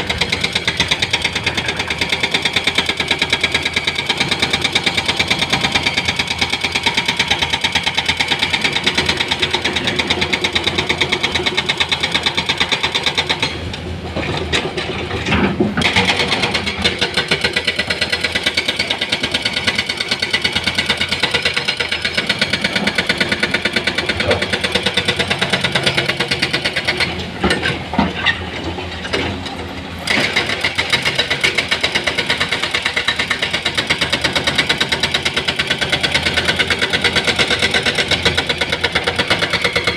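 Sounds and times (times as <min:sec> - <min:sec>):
heavy diesel engine chugging: 0:16.0 - 0:39.9.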